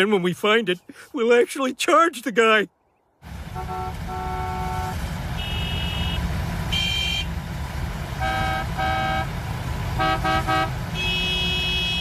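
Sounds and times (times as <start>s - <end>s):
idling engines rumbling: 3.2s - 12.0s
car horns honking: 3.3s - 7.4s, 8.0s - 12.0s.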